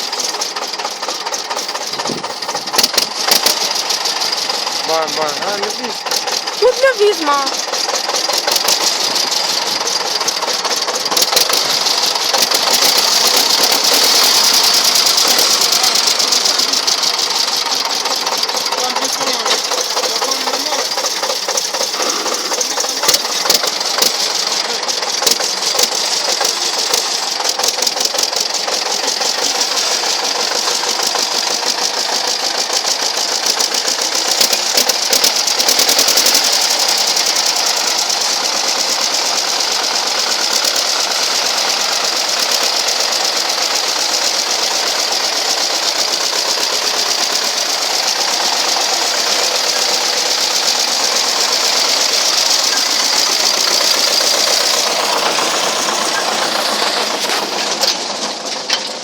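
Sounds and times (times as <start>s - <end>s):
tractor engine knocking: 0.0s - 59.0s.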